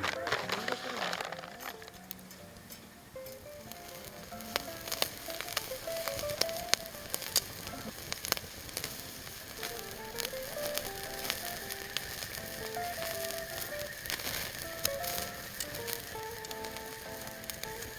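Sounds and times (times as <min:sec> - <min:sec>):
meat sizzling on a grill: 0:00.0 - 0:17.9
simple background melody: 0:00.0 - 0:17.9
spitting fat pops and crackles: 0:00.0 - 0:17.9.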